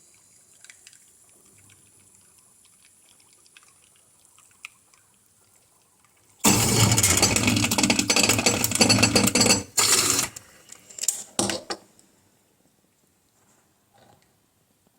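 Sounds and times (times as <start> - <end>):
espresso machine buzzing rattle: 6.5 - 10.4.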